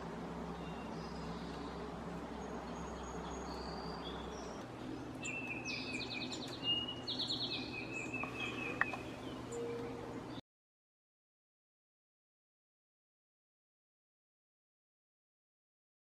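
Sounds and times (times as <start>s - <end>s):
outdoor background noise: 0.0s - 10.4s
songbirds calling: 0.0s - 10.4s.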